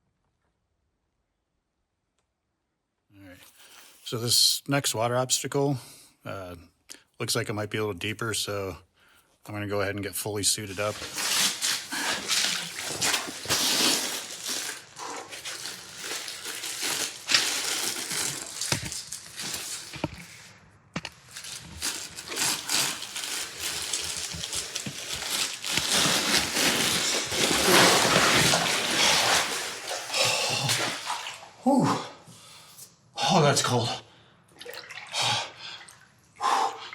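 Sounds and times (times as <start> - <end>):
rustling of gear and clothing: 10.7 - 20.5, 21.2 - 31.4.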